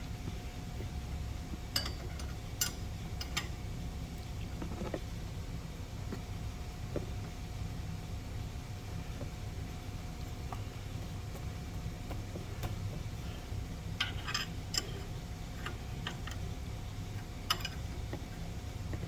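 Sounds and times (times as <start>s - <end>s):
low steady hum: 0.0s - 19.0s
metallic clicks of tools: 17.5s - 17.9s.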